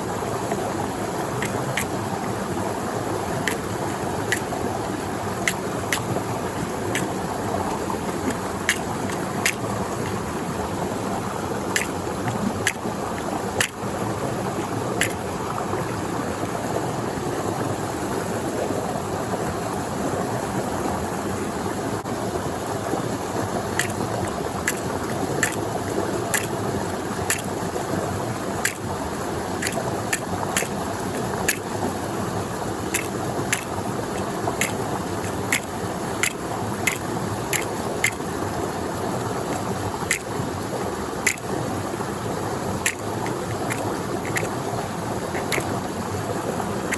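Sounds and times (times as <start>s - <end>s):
oil popping and crackling: 7.7s - 10.3s, 11.7s - 13.8s, 25.4s - 25.6s, 28.6s - 28.8s, 29.6s - 31.7s, 32.9s - 38.2s, 39.4s - 40.3s, 42.8s - 44.6s, 45.3s - 45.8s
fish deep-frying in oil: 28.5s - 31.8s, 32.5s - 38.3s, 39.5s - 40.3s, 41.2s - 41.5s, 42.8s - 44.6s, 45.2s - 45.8s.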